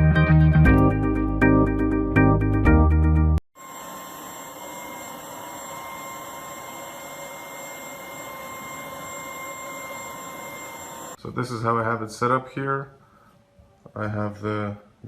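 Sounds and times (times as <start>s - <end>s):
vacuum cleaner motor running: 3.6s - 11.2s.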